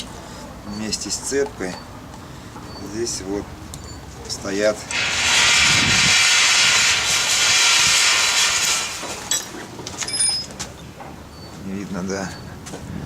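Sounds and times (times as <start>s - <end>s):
pressurised jet hissing: 4.9s - 9.3s.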